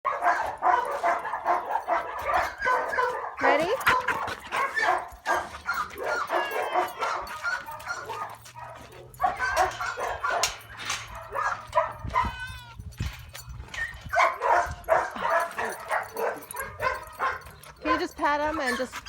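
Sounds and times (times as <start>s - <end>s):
puppy barking and yipping: 0.1s - 19.0s
puppy whining: 5.6s - 8.3s, 9.2s - 19.0s.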